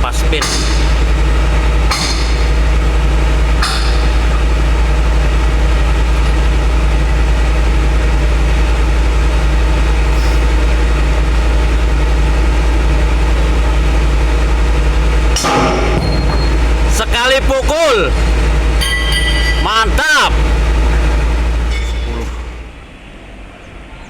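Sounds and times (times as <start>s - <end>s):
hammer striking metal: 0.0s - 6.6s, 15.4s - 21.0s, 21.6s - 22.6s
diesel engine idling: 0.0s - 24.0s.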